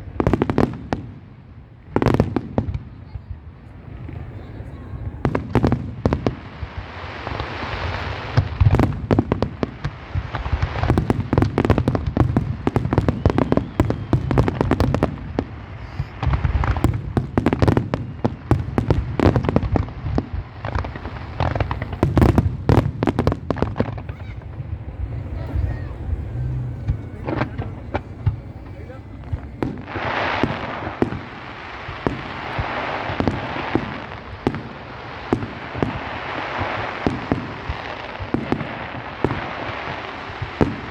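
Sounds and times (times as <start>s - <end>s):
fireworks bangs: 0.0s - 40.9s
fireworks crackling: 0.0s - 40.9s
deep rumble: 20.6s - 30.1s.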